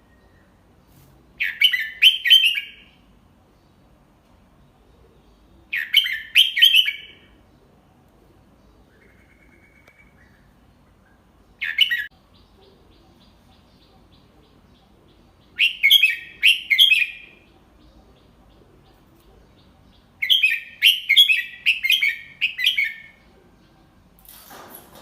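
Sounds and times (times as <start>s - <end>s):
bird singing chattering whistles: 15.6s - 17.3s.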